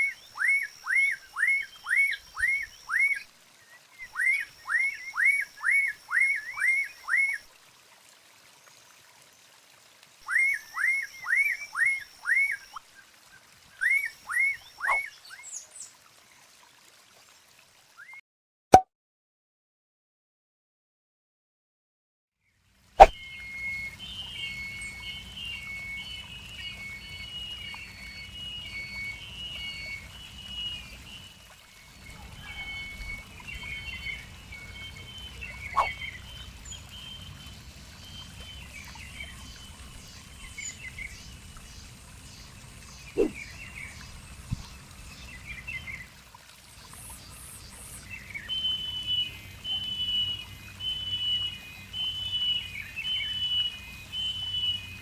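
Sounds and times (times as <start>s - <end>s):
songbird singing: 0.0s - 7.4s, 10.2s - 12.8s, 13.8s - 15.8s, 23.0s - 46.2s, 46.9s - 55.0s
sharp bird calls: 13.9s - 15.1s, 35.2s - 36.2s, 43.1s - 43.5s.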